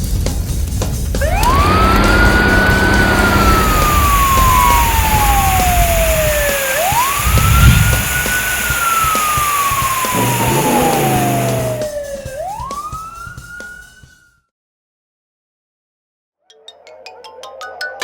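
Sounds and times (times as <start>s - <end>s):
low rumble: 1.2s - 8.8s
wailing siren: 1.2s - 14.3s.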